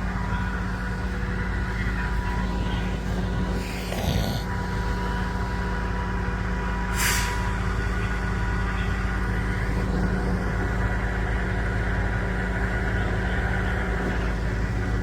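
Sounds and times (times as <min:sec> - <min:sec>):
truck engine idling: 0:00.0 - 0:15.0
sharp air hiss: 0:07.0 - 0:07.4.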